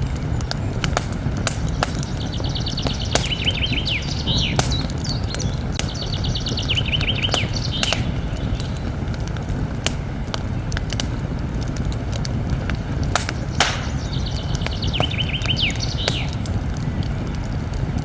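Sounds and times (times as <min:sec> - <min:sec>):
songbird singing: 0:00.0 - 0:11.4, 0:12.4 - 0:18.0
campfire crackling and popping: 0:00.0 - 0:18.0.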